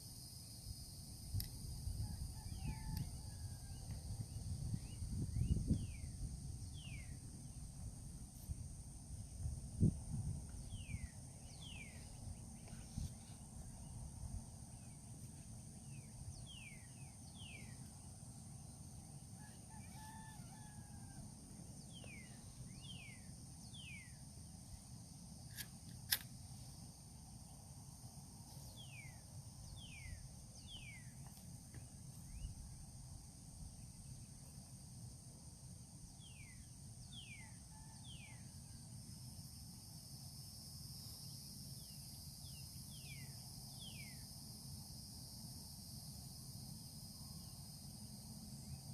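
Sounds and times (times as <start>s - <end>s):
high insect drone: 0.0s - 48.9s
sharp click: 25.5s - 26.3s.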